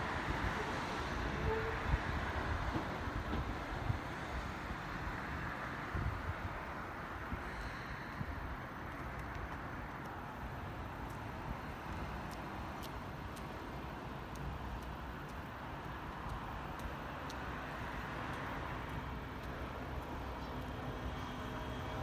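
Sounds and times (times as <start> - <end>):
distant road traffic: 0.0 - 22.0
electric train rumbling slowly: 0.0 - 22.0
faint sharp ticks: 8.8 - 21.4.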